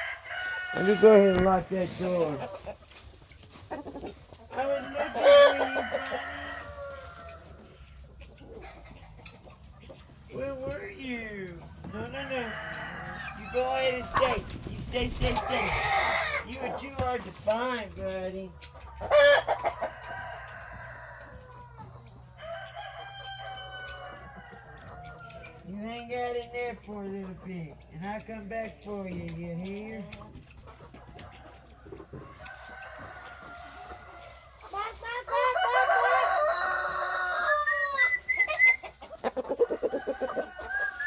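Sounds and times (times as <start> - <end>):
rooster crowing: 0.0 - 1.4, 4.6 - 7.6, 11.9 - 14.1, 19.9 - 21.8, 35.4 - 38.3, 39.6 - 41.0
chickens chirping and clucking: 0.0 - 41.0.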